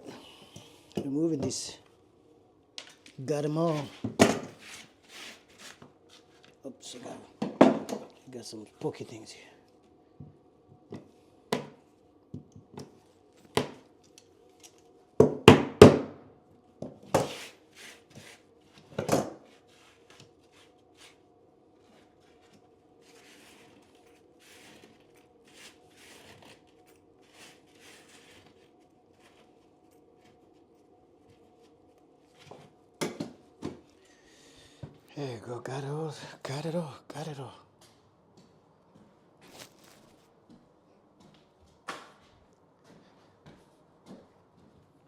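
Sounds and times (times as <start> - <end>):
scratching and scraping: 3.6 - 6.5, 21.9 - 31.7.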